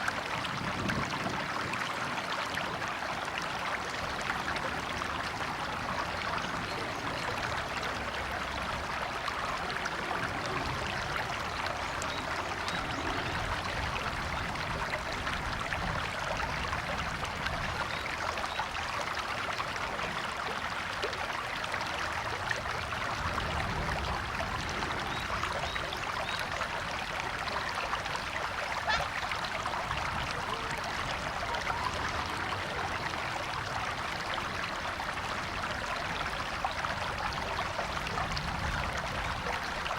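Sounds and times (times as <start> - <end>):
river water over stones: 0.0 - 39.9.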